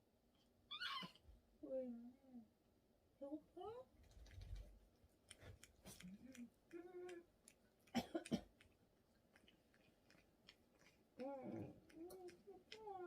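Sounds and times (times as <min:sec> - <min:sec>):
dog whining: 0:00.7 - 0:01.2.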